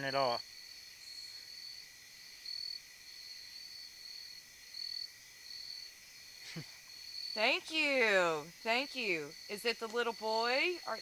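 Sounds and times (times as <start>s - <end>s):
crickets chirping: 0.0s - 11.0s
high insect hum: 0.0s - 11.0s.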